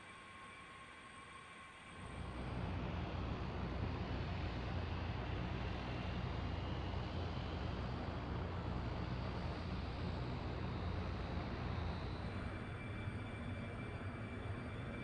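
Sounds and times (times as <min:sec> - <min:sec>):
faint high whine: 0:00.0 - 0:15.0
aircraft engines rumbling: 0:02.1 - 0:12.8.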